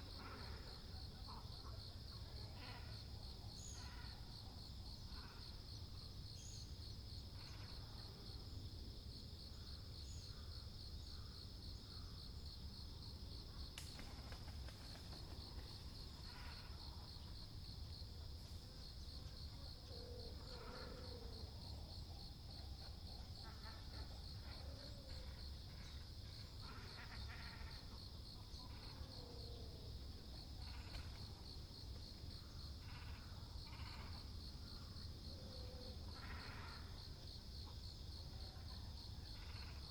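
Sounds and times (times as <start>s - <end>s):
low croaking call: 16.2s - 17.0s, 30.6s - 31.2s, 32.8s - 34.3s, 35.6s - 37.0s, 39.3s - 39.9s
insect trilling: 32.6s - 34.3s.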